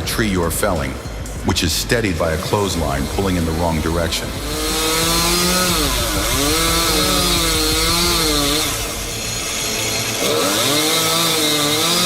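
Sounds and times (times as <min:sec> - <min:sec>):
chainsaw engine under load: 0:04.4 - 0:12.0.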